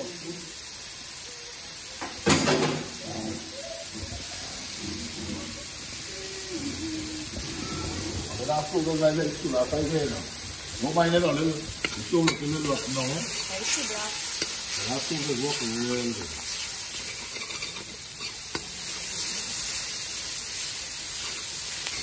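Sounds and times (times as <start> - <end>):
paste sizzling in hot oil: 0.0 - 22.0
metal spoon scraping pot: 16.5 - 18.7.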